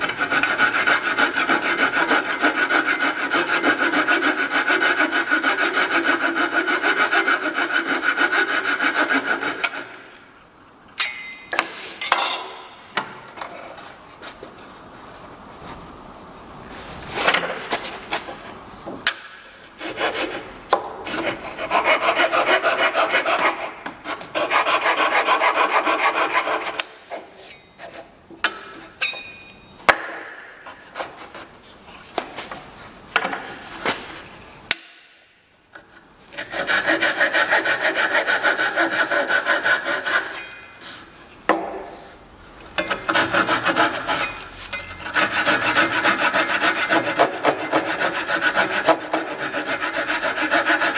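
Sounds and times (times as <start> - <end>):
tool scraping wood: 0.0 - 10.1, 19.5 - 28.9, 30.6 - 32.6, 36.3 - 42.2, 42.8 - 50.9.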